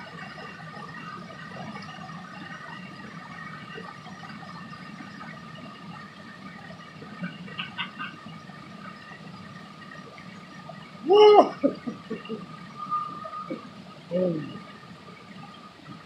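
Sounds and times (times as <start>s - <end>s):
waterfall rushing: 11.0s - 14.9s.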